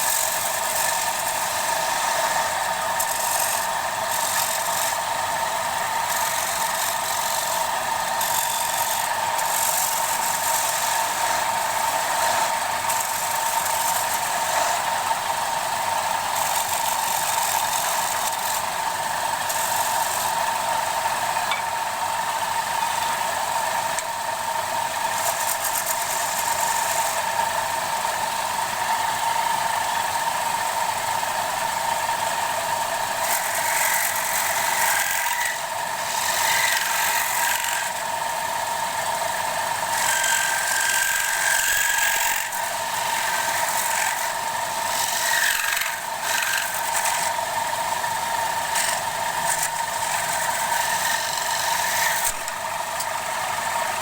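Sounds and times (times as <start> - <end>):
turning tool hissing on wood: 0.0 - 20.6, 33.2 - 37.9
wood lathe whine: 0.0 - 54.0.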